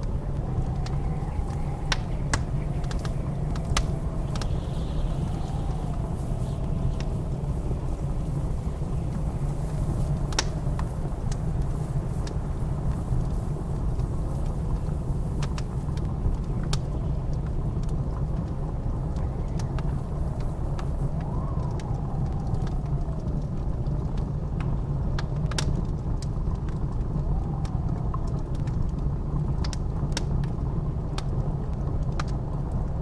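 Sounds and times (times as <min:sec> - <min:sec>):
howling blizzard wind: 0:00.0 - 0:33.0
wood fire crackling: 0:00.0 - 0:33.0.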